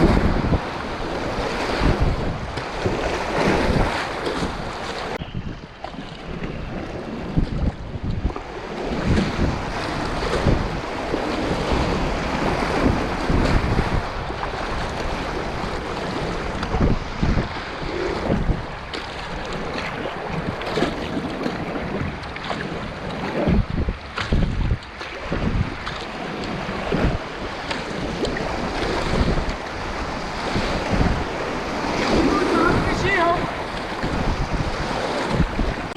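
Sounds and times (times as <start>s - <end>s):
water splashes: 0.0s - 35.9s
wind buffeting microphone: 0.0s - 35.9s
whitewater river rushing: 17.5s - 35.9s.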